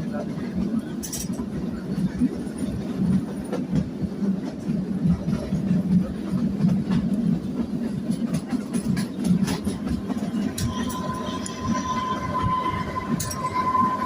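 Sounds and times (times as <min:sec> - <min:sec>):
train coach rumble: 0:00.0 - 0:14.0
wheels clattering on rails: 0:00.0 - 0:14.0.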